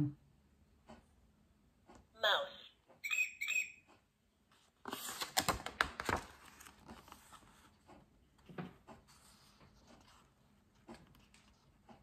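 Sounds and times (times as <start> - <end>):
toy button squeaks: 3.0 - 3.8
stiff book page turning: 4.6 - 7.8.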